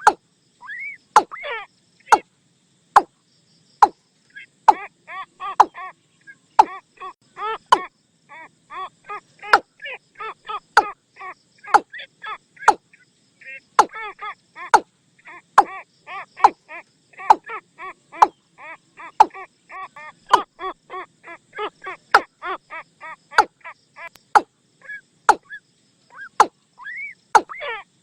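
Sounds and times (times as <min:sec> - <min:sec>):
bird knocking calls: 0:00.0 - 0:00.2, 0:01.2 - 0:01.4, 0:05.6 - 0:05.8, 0:06.6 - 0:06.8, 0:07.7 - 0:07.9, 0:10.8 - 0:11.0, 0:12.6 - 0:12.8, 0:13.8 - 0:14.0, 0:15.6 - 0:15.8, 0:16.4 - 0:16.6, 0:17.2 - 0:17.5, 0:19.2 - 0:19.4, 0:25.3 - 0:25.6, 0:26.3 - 0:26.6, 0:27.4 - 0:27.6.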